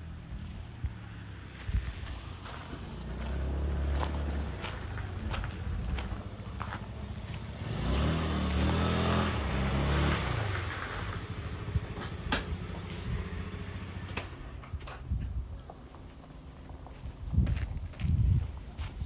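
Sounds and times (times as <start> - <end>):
vehicle engine passing by: 0.0 - 14.7.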